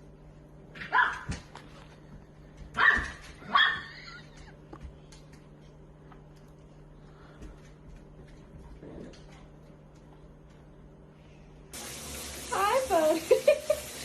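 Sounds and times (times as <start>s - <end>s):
dog barking: 0.8s - 1.3s, 2.8s - 3.9s.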